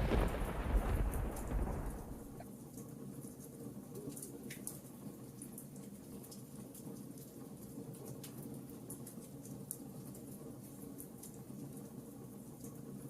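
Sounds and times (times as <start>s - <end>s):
sharp pops of fire: 0.0s - 2.4s
wood fire crackling: 0.0s - 2.4s.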